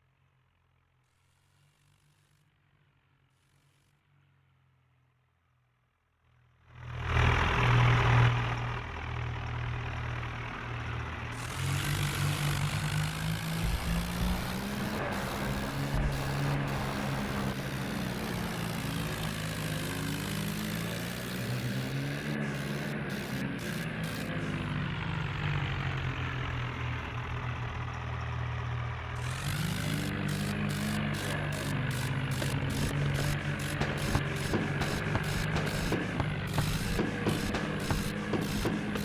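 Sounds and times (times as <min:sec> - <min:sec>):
tractor engine running: 0:08.9 - 0:39.0.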